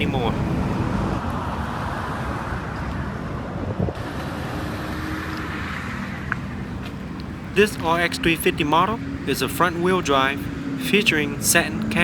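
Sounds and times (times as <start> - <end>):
wind noise on microphone: 0.0 - 4.9
road traffic rumble: 0.0 - 12.0.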